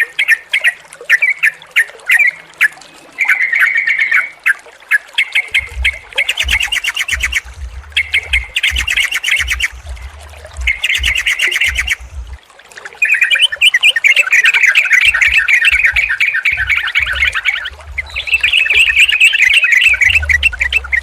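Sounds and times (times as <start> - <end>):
bulbuls chattering: 5.5 - 12.4, 13.1 - 21.0
low rumble: 5.6 - 12.4, 15.1 - 21.0.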